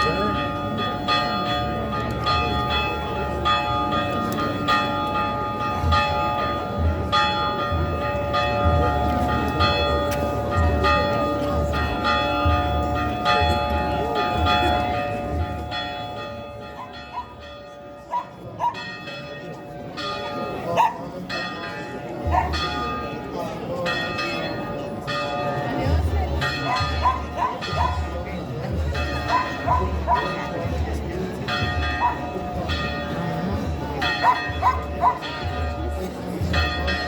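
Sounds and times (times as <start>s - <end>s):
church bells ringing: 0.0s - 37.0s
dog barking: 18.1s - 18.8s, 20.8s - 21.0s, 22.3s - 22.5s, 26.7s - 28.0s, 32.0s - 32.2s, 34.2s - 35.2s.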